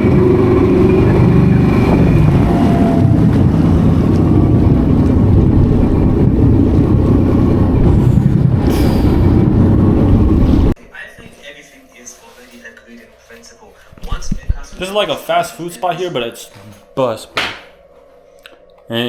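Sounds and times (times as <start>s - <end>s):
motorboat engine rumble: 0.0s - 10.8s
wind buffeting microphone: 0.0s - 10.8s.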